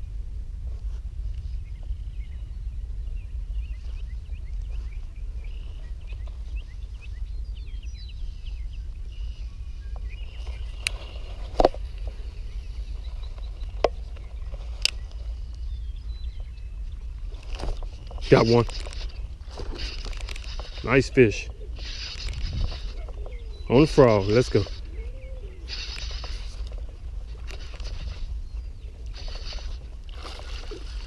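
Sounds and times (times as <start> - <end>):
low rumble: 0.0 - 18.4
quick high bird chirps: 18.8 - 26.8.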